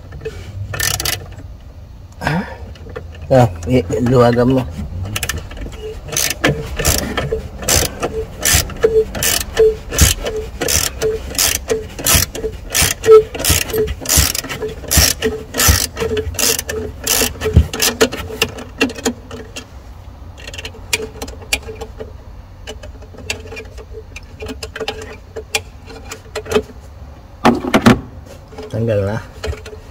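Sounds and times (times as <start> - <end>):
ratchet wrench clicking: 0.7 - 1.3, 5.1 - 19.2.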